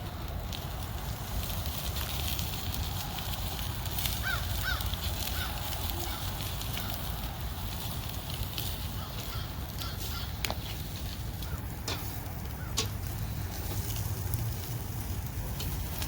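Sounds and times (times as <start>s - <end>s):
meat sizzling on a grill: 0.0s - 16.0s.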